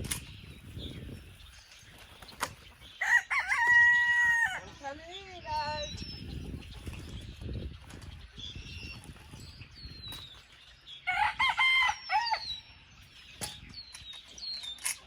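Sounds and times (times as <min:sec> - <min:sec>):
small birds chirping: 0:00.0 - 0:15.0
rooster crowing: 0:03.0 - 0:04.7, 0:11.0 - 0:12.5.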